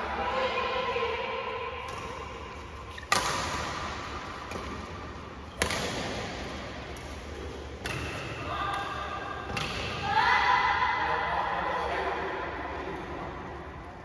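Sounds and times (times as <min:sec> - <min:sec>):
badminton racket hitting shuttlecock: 0:02.9 - 0:10.1.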